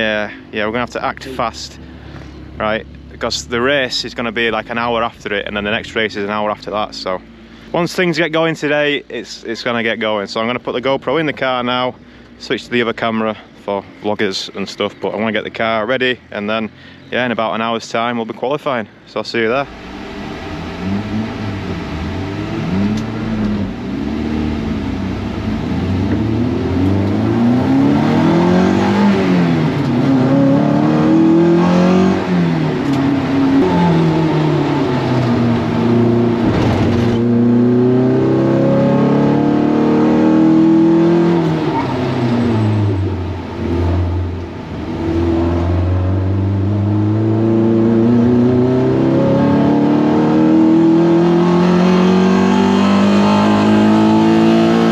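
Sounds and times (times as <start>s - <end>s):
race car engine accelerating: 19.6s - 54.9s.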